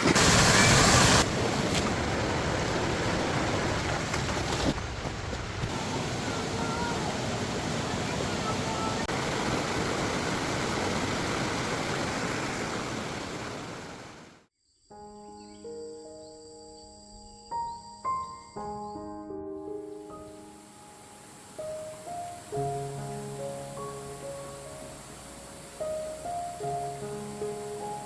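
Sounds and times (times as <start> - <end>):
floodwater rushing: 0.0 - 14.4.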